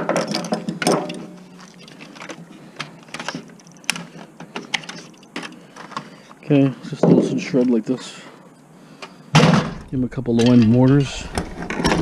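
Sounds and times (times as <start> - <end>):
metal and plastic parts clinking: 0.0 - 6.4.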